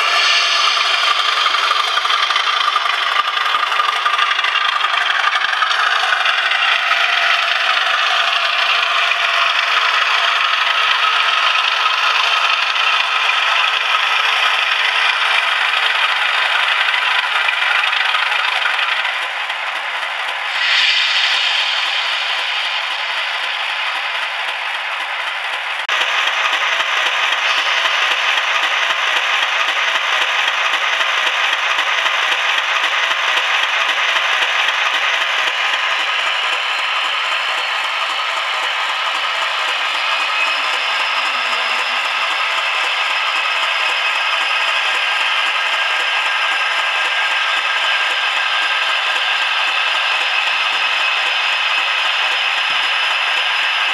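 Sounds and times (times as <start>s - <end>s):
steady rattle: 0.0s - 41.1s
model locomotive engine sound: 0.0s - 53.9s.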